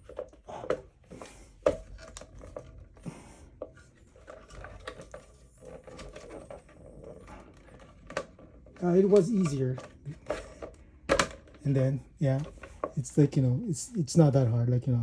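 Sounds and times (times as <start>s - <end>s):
plastic scraping and rustling: 0.0s - 14.4s
plastic clicks and knocks: 7.5s - 13.0s.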